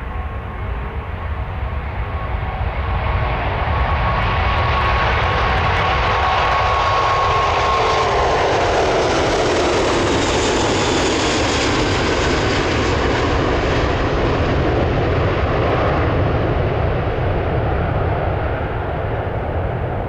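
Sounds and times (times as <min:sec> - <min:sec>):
jet airliner roaring past: 0:00.0 - 0:20.0
jet engine whine: 0:00.0 - 0:20.0.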